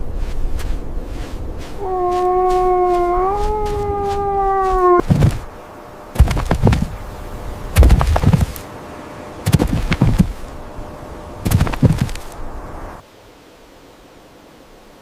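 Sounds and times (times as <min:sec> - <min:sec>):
long steady howl: 0:00.8 - 0:15.0
low rough animal calls: 0:01.8 - 0:05.5.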